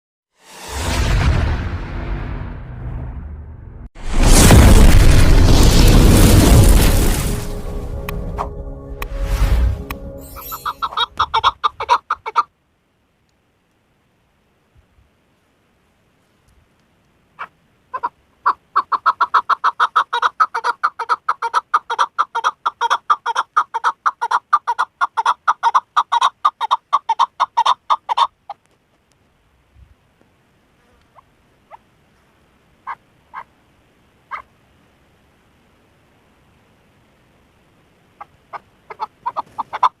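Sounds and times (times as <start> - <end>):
partridge calling chuk notes: 9.9 - 12.5.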